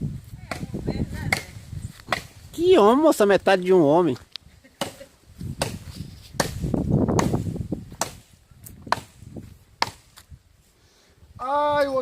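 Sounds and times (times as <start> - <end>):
axe chopping wood: 1.3 - 2.4, 5.6 - 9.2, 9.8 - 10.3.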